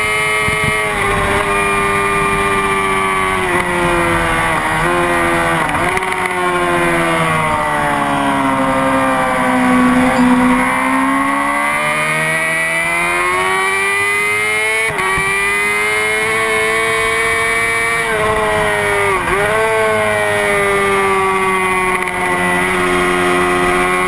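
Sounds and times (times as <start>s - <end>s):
motorcycle engine revving: 1.0s - 12.1s.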